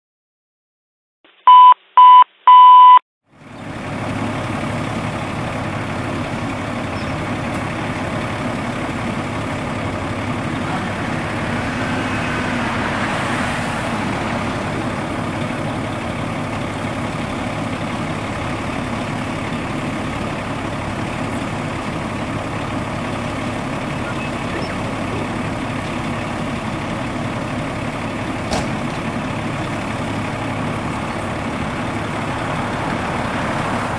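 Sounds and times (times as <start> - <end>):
electronic beeps: 1.4 - 3.0
diesel engine idling: 3.3 - 33.9.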